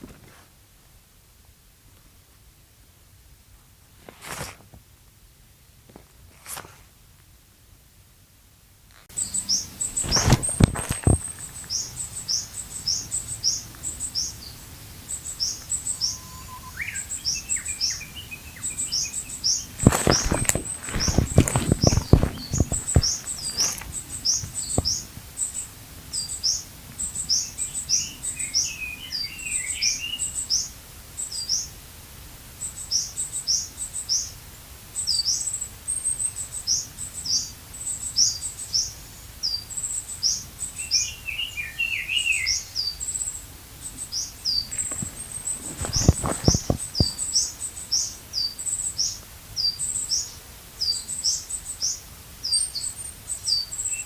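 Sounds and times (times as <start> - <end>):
bird twittering: 9.2 - 31.7, 36.3 - 43.3, 44.0 - 54.0
high thin bird call: 15.2 - 26.6
dull knocks: 19.8 - 25.0.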